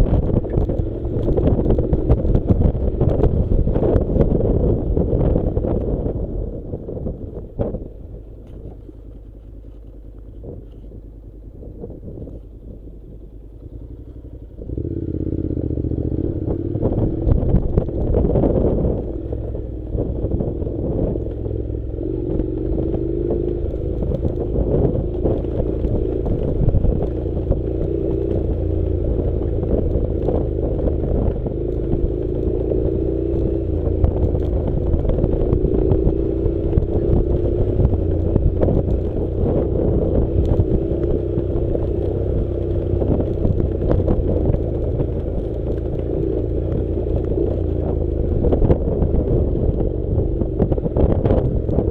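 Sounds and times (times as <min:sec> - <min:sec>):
motorcycle engine running: 0:00.0 - 0:51.9
motorcycle rattling: 0:00.0 - 0:51.9
gravel clattering and scraping: 0:08.3 - 0:10.9.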